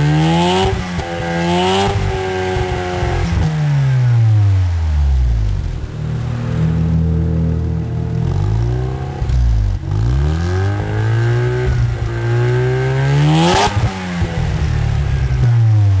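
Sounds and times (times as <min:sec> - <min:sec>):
rotary engine revving: 0:05.1 - 0:15.6.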